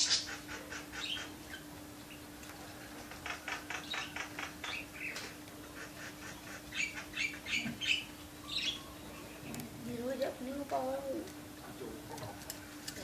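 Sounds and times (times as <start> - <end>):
canary chirping: 0.0 - 1.7, 3.2 - 9.4
steady low hum: 0.0 - 13.0.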